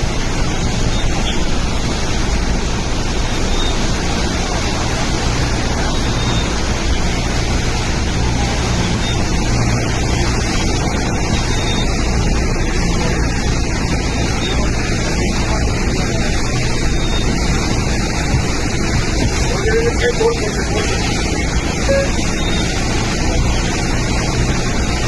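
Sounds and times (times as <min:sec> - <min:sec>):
heavy rain: 0:00.0 - 0:25.0
rushing wind: 0:00.0 - 0:25.0.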